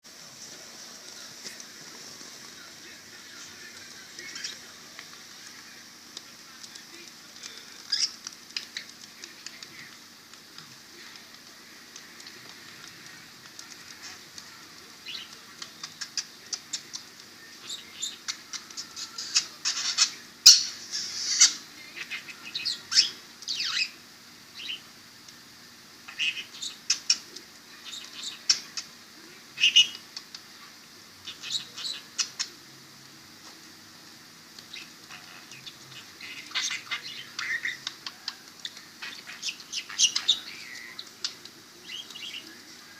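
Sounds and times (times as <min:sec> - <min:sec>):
budgie chirping and chattering: 0:34.7 - 0:42.4.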